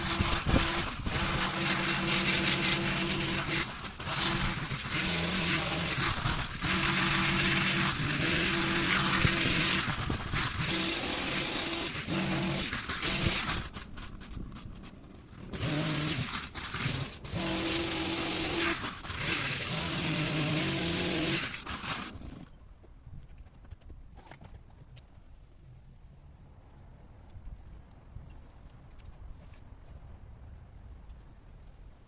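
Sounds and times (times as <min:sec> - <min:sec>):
small petrol engine revving: 0:00.0 - 0:14.4, 0:15.4 - 0:22.6.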